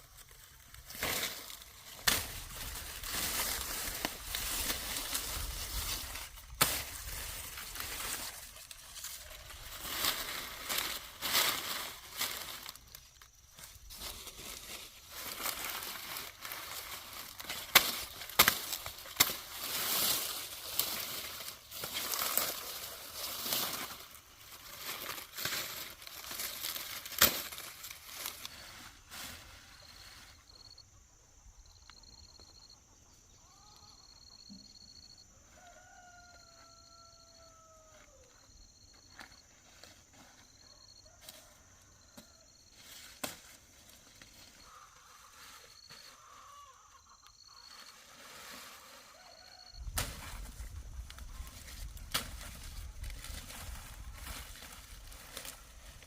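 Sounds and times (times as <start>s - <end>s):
dry leaves rustling and crackling: 0.0s - 30.4s, 47.5s - 56.0s
faint high chirping: 29.5s - 39.4s
rooster crowing: 35.2s - 38.5s, 40.6s - 42.6s, 48.8s - 50.0s.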